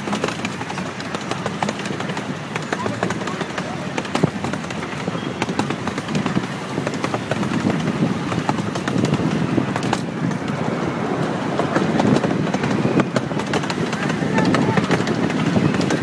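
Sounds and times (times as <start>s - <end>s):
sharp track clicks: 0.0s - 16.0s
train rumble and rattle: 0.0s - 16.0s.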